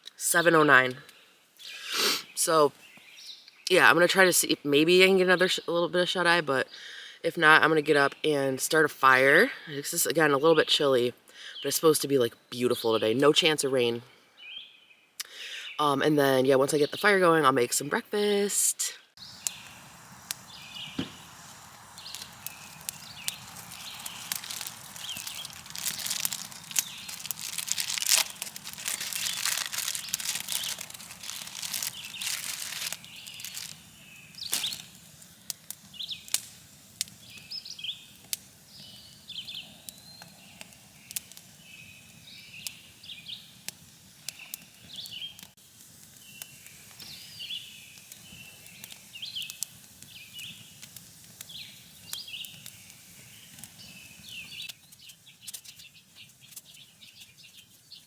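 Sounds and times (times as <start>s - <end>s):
small birds chirping: 0.2s - 6.9s, 10.2s - 58.0s
crinkling and rustling: 21.0s - 33.9s.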